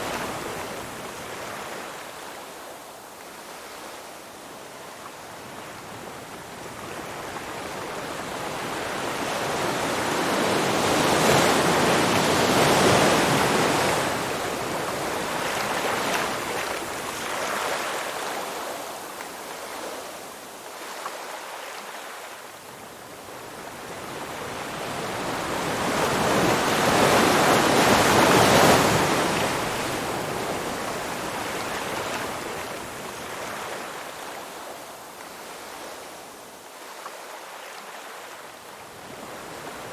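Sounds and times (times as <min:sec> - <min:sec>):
ocean surf washing ashore: 0:23.2 - 0:39.9.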